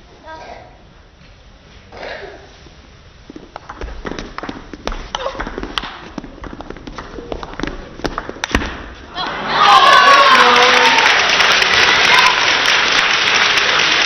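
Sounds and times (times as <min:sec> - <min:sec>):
crowd noise: 0:07.1 - 0:14.0.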